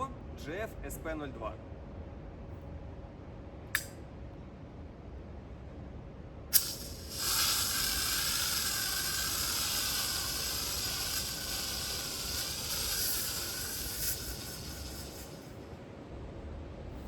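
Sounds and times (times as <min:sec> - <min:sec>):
spray can hissing: 0:06.5 - 0:15.6
spray can click: 0:06.6 - 0:11.3.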